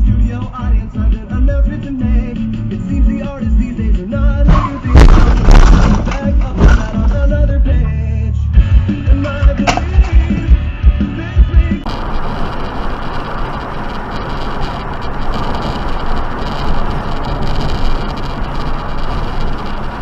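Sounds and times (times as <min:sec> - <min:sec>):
music: 0:00.0 - 0:11.9
car driving road noise: 0:04.4 - 0:07.6, 0:11.8 - 0:20.0.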